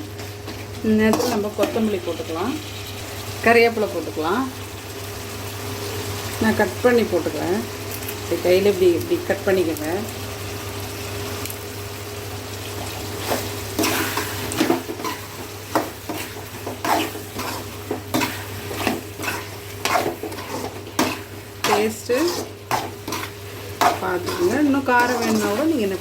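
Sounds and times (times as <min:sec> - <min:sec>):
spoon scraping a frying pan: 0:00.0 - 0:03.2, 0:13.2 - 0:26.0
low sizzle of frying: 0:00.0 - 0:26.0.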